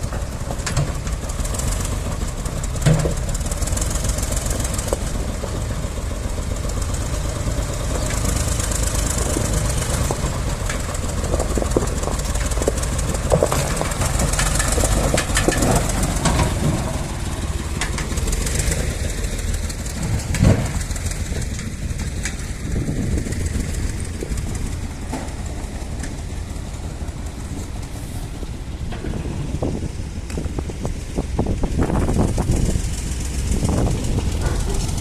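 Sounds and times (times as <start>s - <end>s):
tractor engine running: 0.0s - 35.0s
knocks and clanks: 0.1s - 1.8s, 2.5s - 5.7s, 7.3s - 22.4s, 28.8s - 31.0s, 33.3s - 35.0s.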